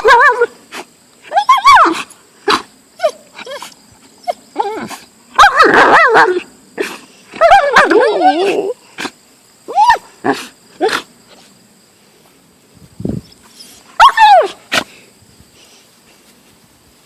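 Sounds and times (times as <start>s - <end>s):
dog yelps: 1.2s - 8.8s, 13.5s - 14.8s.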